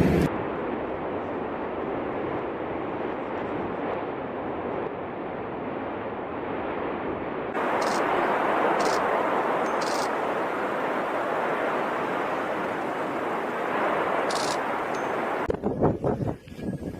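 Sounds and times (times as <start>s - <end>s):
volcano eruption roar: 0.0s - 15.5s.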